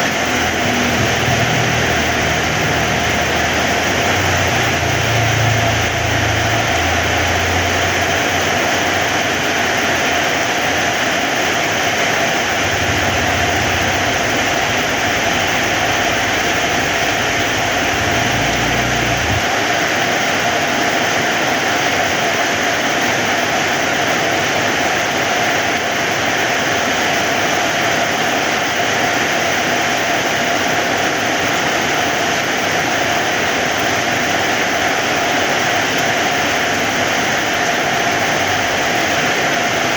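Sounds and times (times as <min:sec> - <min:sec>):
heavy rain falling: 0:00.0 - 0:39.9
low rumble: 0:12.4 - 0:19.5.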